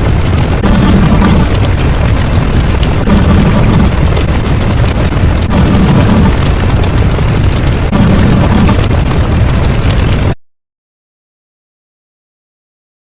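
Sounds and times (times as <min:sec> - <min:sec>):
loud low rumbling: 0:00.0 - 0:10.4.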